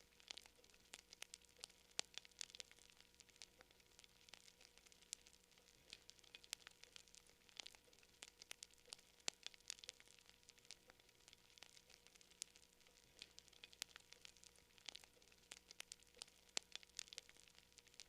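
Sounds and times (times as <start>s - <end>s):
campfire wood crackling: 0.0s - 18.0s.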